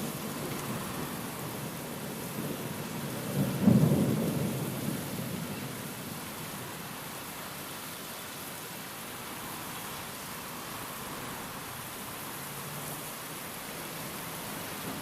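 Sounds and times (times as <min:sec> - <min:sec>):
steady rain: 0:00.0 - 0:15.0
thunder crack and rumble: 0:02.3 - 0:06.1.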